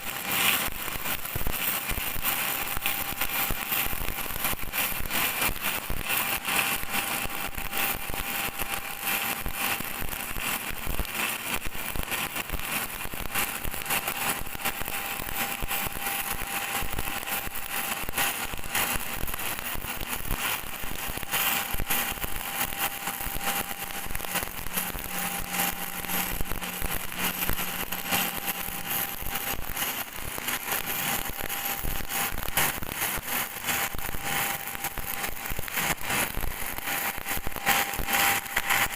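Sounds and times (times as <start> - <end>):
welding arc crackling and sizzling: 0.0 - 38.9.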